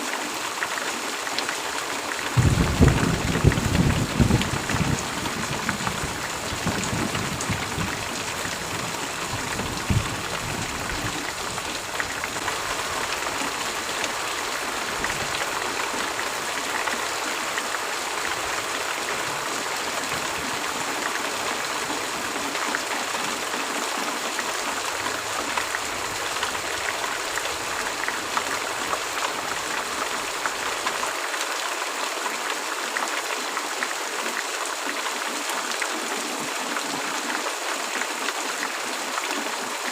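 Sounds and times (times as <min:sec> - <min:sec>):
heavy rain: 0:00.0 - 0:39.9
thunder rumble: 0:02.4 - 0:11.3.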